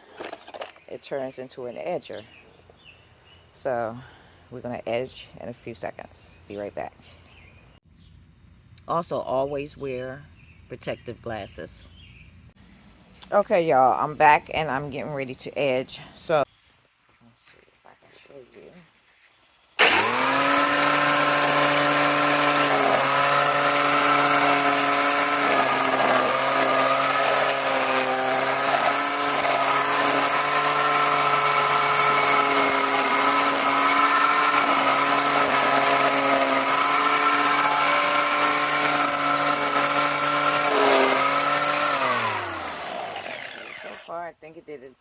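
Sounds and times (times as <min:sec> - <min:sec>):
grass trimmer edging lawn: 0:19.8 - 0:44.2.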